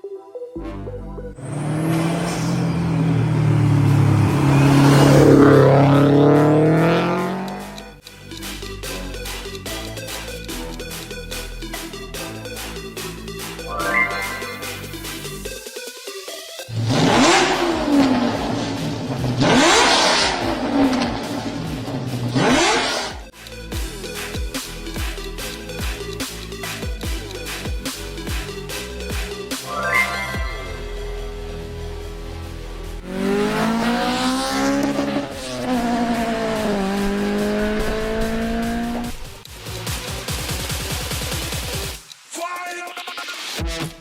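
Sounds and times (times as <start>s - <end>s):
car engine revving: 1.3s - 8.0s, 16.7s - 23.3s, 30.0s - 39.8s.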